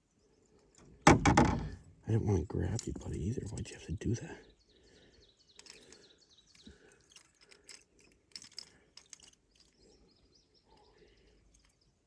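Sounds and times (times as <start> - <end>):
faint clicks and rustles: 5.5 - 12.0.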